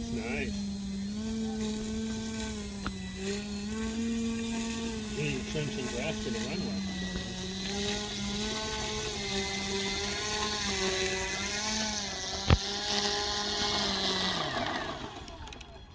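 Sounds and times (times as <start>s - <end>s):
model airplane motor whine: 0.0s - 15.9s.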